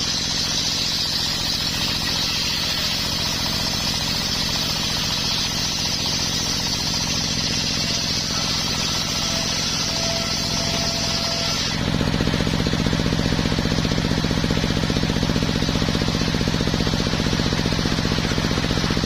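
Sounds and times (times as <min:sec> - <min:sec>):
circular saw hissing: 0:00.0 - 0:12.7
engine chugging: 0:00.0 - 0:19.0.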